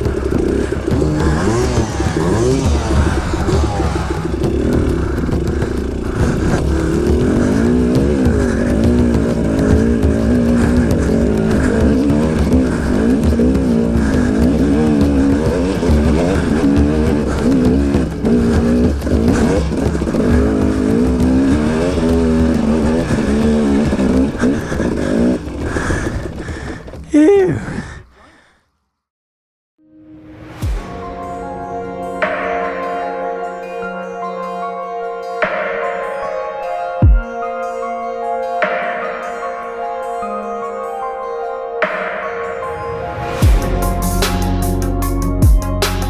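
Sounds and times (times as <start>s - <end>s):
two-stroke dirt bike engine: 0.0s - 27.6s.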